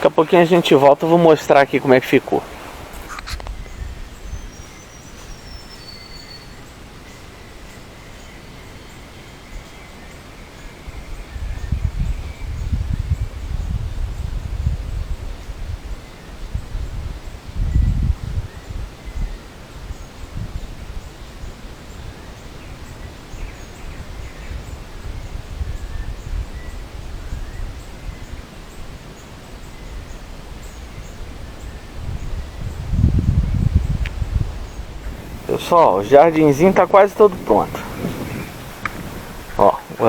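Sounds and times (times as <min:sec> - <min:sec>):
wind on microphone: 0:00.0 - 0:06.6, 0:10.8 - 0:40.0
leaves rustling: 0:00.0 - 0:11.4, 0:18.4 - 0:40.0
background hiss: 0:00.0 - 0:40.0
faint bird chirps: 0:00.4 - 0:14.4
bird whistling: 0:04.3 - 0:06.6.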